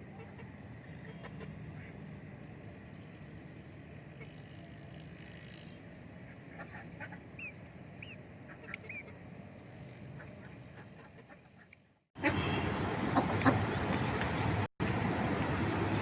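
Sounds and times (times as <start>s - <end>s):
ducks and chickens feeding: 10.2s - 14.5s.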